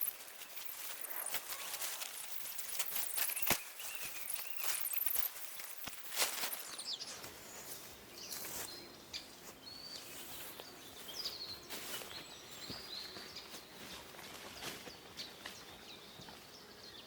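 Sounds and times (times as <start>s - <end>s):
small birds chirping: 0.0s - 17.0s
steady outdoor hiss: 0.0s - 17.0s.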